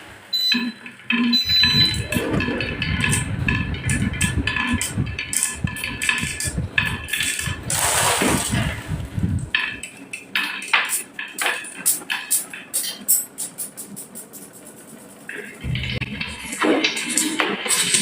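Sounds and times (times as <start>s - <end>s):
low rolling rumble: 1.4s - 7.8s, 8.4s - 9.6s, 15.6s - 16.9s.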